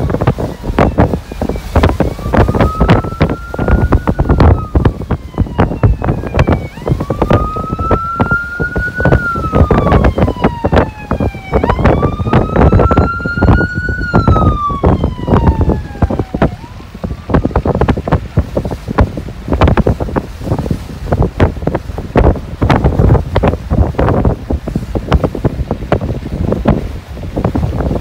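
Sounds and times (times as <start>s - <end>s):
siren wailing: 0.0s - 17.8s
wind buffeting microphone: 0.0s - 28.0s.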